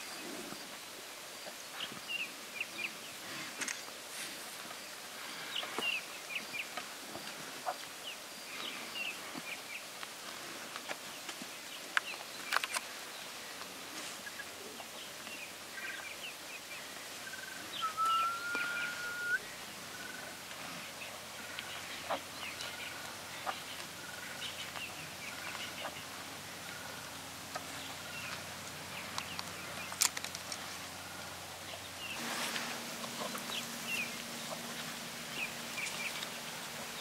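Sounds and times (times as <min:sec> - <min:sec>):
birds chirping: 0:14.2 - 0:37.0
drawn-out rising bird whistle: 0:17.7 - 0:19.5.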